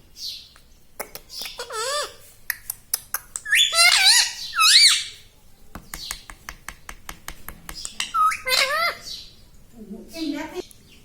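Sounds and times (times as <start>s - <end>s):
parrot squawking: 1.4s - 2.2s, 3.4s - 5.2s, 8.0s - 9.2s.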